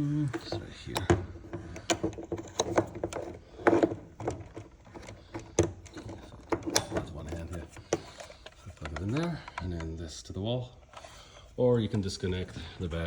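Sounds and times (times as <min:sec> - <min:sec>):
handling rattle: 0:00.2 - 0:09.9.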